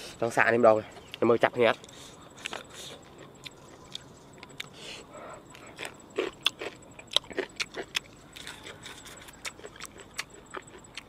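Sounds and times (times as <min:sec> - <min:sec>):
person chewing with crunches: 0:00.9 - 0:11.0.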